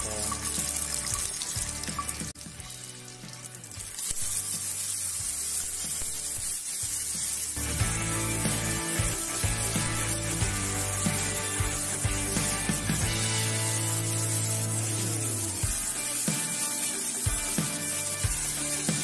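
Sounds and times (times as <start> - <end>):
light background music: 0.0 - 19.0
vegetables sizzling in hot oil: 0.0 - 19.0.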